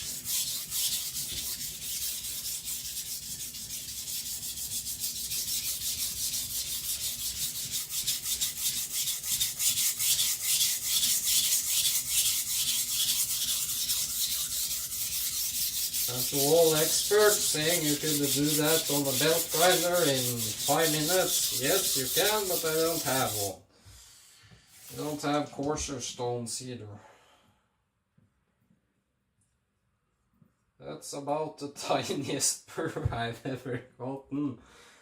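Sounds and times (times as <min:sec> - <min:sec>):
knife scrubbing on whetstone: 0:00.0 - 0:23.5, 0:24.7 - 0:25.2.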